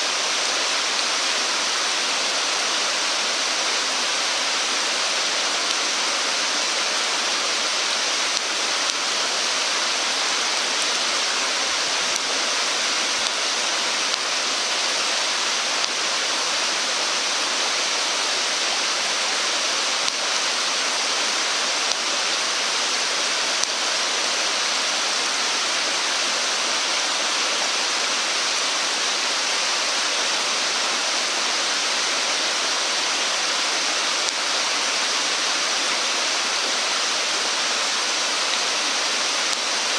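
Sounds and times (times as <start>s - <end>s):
rushing water: 0.0s - 39.9s
faint clicks: 8.2s - 14.4s, 38.4s - 39.9s.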